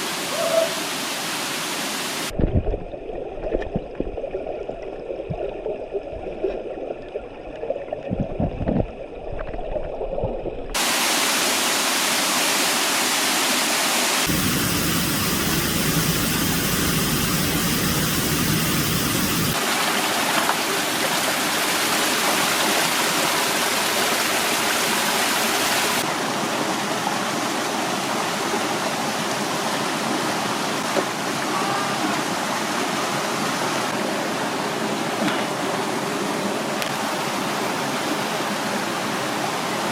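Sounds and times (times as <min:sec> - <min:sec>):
water rushing over rocks: 0:19.5 - 0:39.9.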